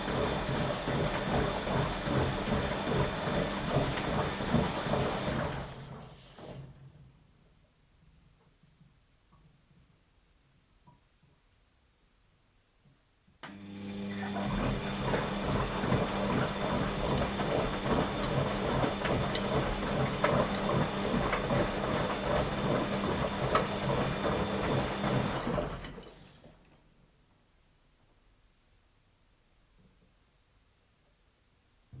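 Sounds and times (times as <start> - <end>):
washing machine drum turning: 0.0 - 5.9, 14.2 - 26.1.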